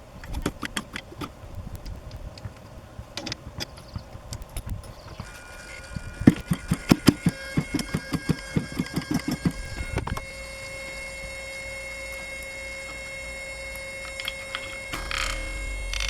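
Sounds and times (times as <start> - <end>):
faint steady whine: 0.0 - 16.0
click: 0.2 - 16.0
engine cranking over: 3.2 - 16.0.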